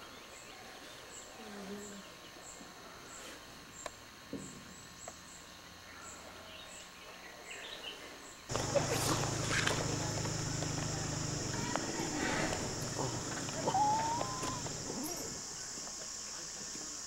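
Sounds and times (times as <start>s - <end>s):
short bird calls: 8.5s - 15.5s.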